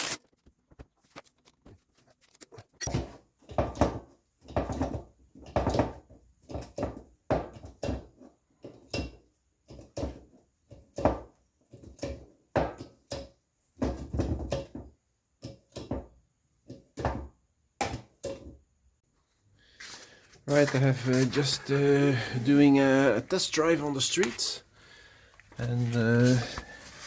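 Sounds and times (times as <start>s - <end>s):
knocks and thumps: 10.9s - 18.6s.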